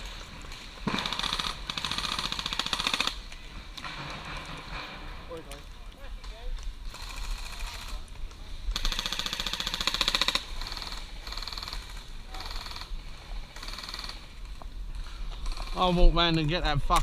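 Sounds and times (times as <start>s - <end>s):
airsoft rifle firing bursts: 0.8s - 3.2s, 8.7s - 14.3s.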